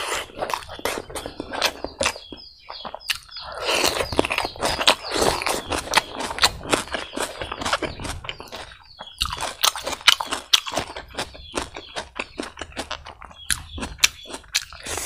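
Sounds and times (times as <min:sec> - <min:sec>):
chewing mouth clicks: 0:00.1 - 0:15.0.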